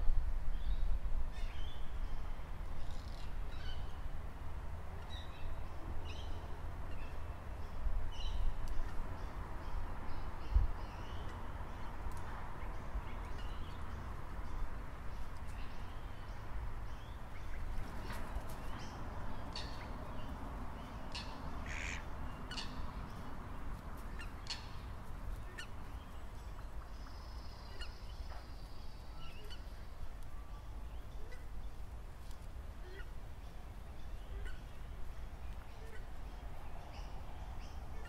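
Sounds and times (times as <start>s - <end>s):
birds calling: 12.6s - 23.4s.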